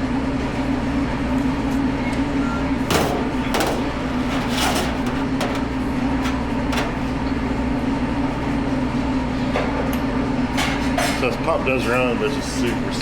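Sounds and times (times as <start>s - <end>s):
pump clicks and knocks: 2.9s - 4.0s, 4.7s - 5.8s
gravelly pump rattle: 2.9s - 7.0s.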